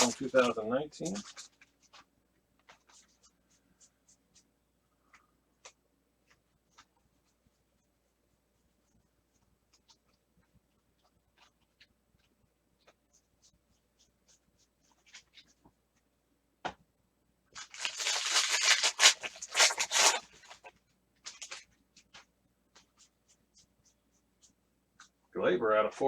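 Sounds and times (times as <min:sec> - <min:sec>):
foil wrapper tearing: 0:00.0 - 0:01.6, 0:17.6 - 0:20.7, 0:21.3 - 0:21.6.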